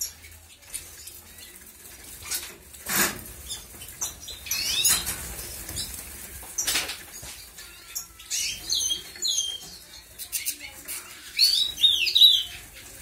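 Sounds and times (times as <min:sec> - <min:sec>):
wings fluttering: 0:00.6 - 0:07.8
high bird chirps: 0:03.4 - 0:06.0, 0:06.6 - 0:12.8.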